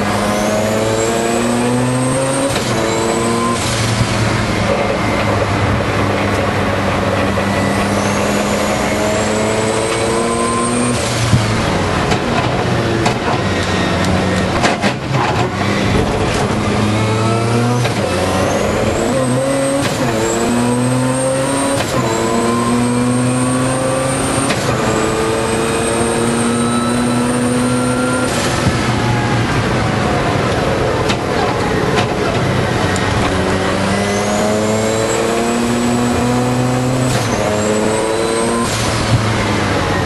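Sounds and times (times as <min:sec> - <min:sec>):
rotary engine revving through gears: 0:00.0 - 0:40.0
engine knocks: 0:03.8 - 0:08.3, 0:11.1 - 0:16.7, 0:28.5 - 0:33.9.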